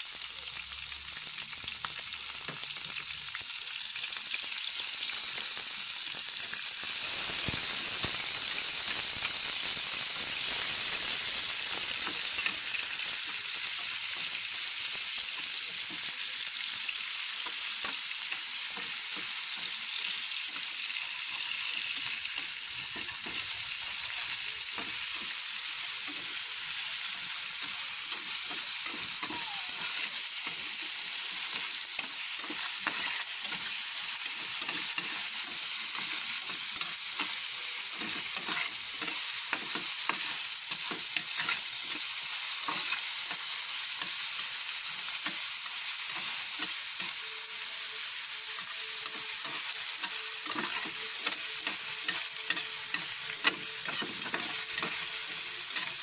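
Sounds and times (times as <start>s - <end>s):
meat sizzling in a frying pan: 0.0s - 56.0s
spatula scraping a pan: 29.7s - 43.4s, 48.5s - 56.0s.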